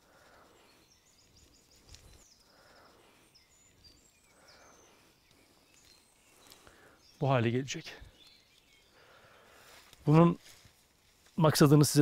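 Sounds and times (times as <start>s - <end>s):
distant high bird chirps: 0.0s - 9.9s.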